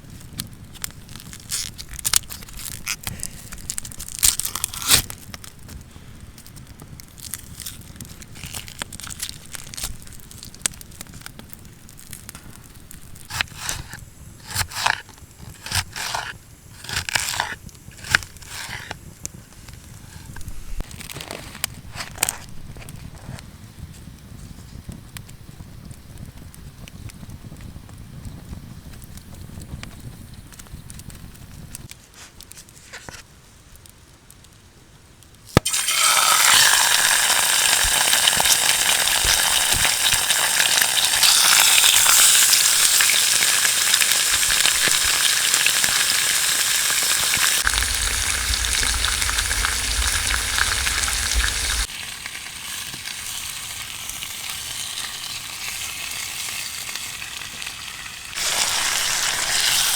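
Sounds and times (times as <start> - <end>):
food sizzling in a frying pan: 35.6 - 59.9.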